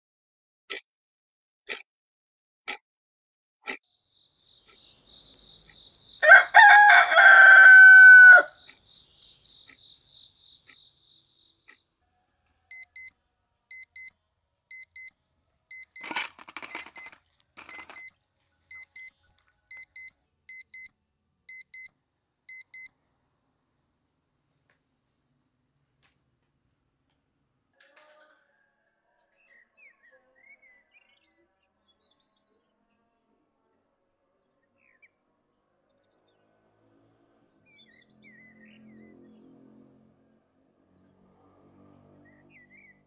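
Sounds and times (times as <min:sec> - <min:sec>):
rooster crowing: 0:05.4 - 0:09.3
smartphone alarm beeps: 0:12.7 - 0:13.1, 0:13.7 - 0:15.1, 0:15.7 - 0:16.2, 0:16.8 - 0:18.1, 0:18.7 - 0:20.9, 0:21.5 - 0:21.9, 0:22.5 - 0:22.9.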